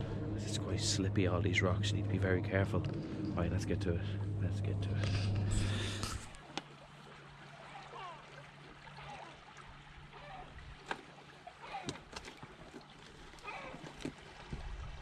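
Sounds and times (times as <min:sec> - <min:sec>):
water trickling among rocks: 0:05.8 - 0:15.0.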